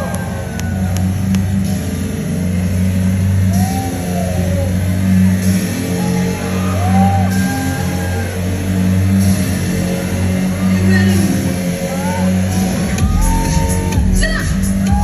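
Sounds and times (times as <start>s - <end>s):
electropop song through club speakers: 10.4s - 15.0s.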